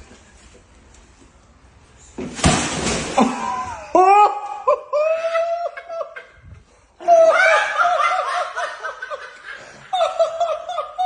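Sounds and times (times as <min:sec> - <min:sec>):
person laughing: 0:03.2 - 0:06.4, 0:07.0 - 0:11.0.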